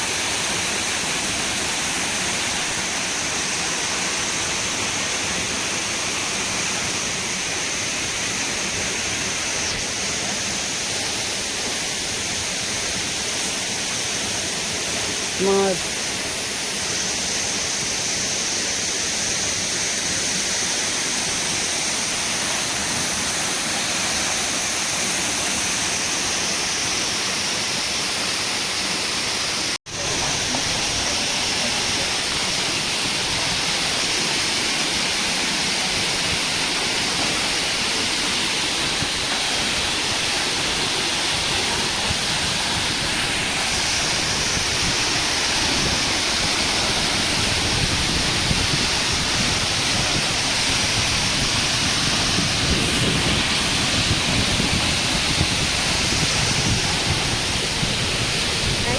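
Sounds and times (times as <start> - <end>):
water rushing: 0.0 - 58.9.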